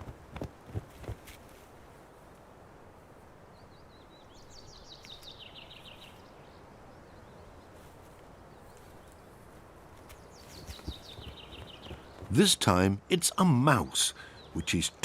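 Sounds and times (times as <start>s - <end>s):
faint outdoor background hiss: 0.0s - 15.0s
bird high chirps: 10.2s - 12.6s.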